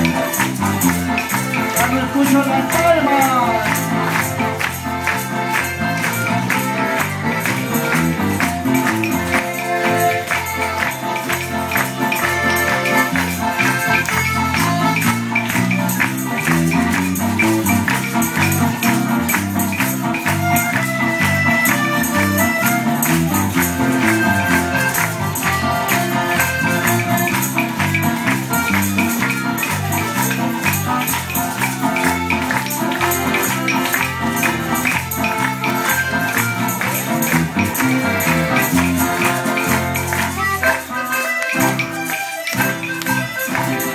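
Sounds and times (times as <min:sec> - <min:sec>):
bass line: 0:00.0 - 0:42.0
accordion: 0:00.0 - 0:43.9
guitars: 0:00.0 - 0:43.9
tambourines shaken: 0:00.0 - 0:43.9.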